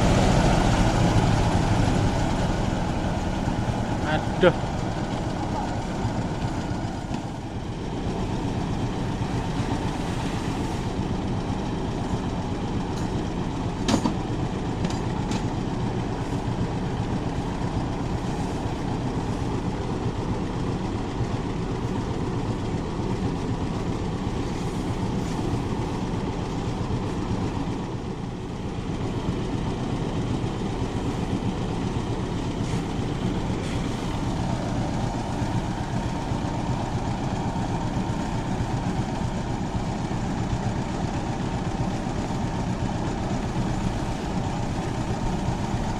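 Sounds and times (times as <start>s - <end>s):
threshing machine running: 0.0s - 45.9s.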